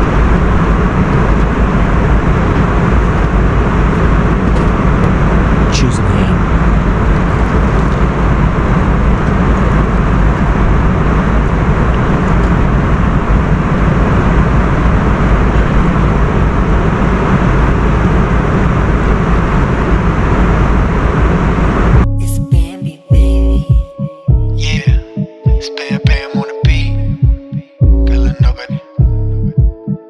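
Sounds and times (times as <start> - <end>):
jet cabin roar: 0.0 - 23.1
music with heavy beat: 22.0 - 30.0.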